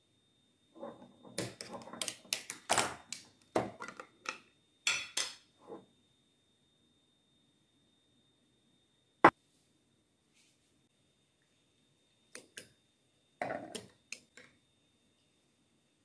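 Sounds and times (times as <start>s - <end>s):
utensils clinking on dishes: 4.9s - 5.4s.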